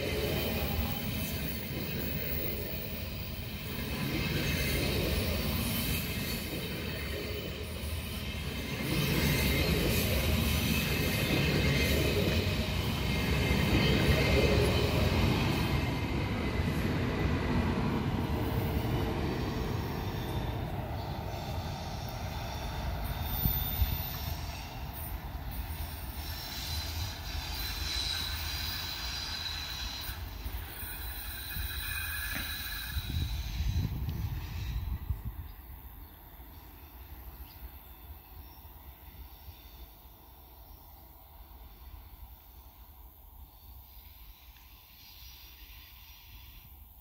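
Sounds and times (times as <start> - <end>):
train rumbling past: 0.0 - 47.0
high wheel squeal: 3.4 - 15.8, 18.2 - 35.3.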